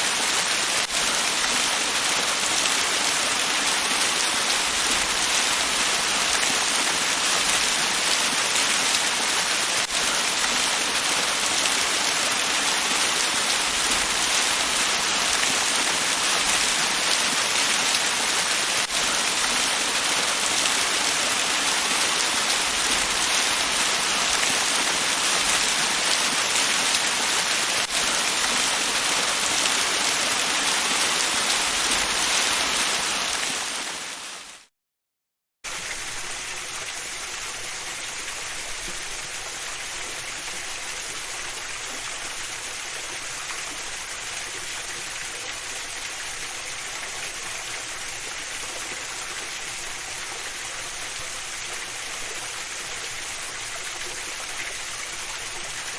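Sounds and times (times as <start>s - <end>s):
waterfall rushing: 0.0s - 34.4s.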